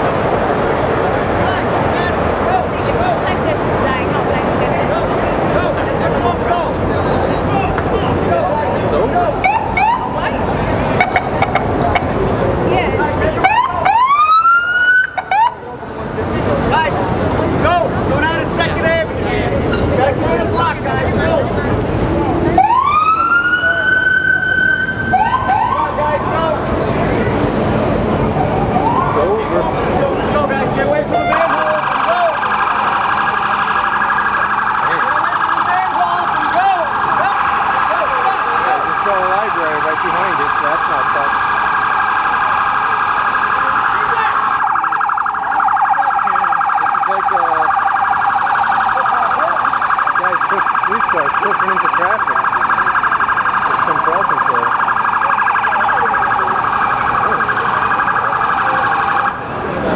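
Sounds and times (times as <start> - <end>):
siren rising and falling: 5.7 - 59.9
electronic siren fast warble: 12.7 - 15.7, 22.2 - 26.6, 28.4 - 59.6.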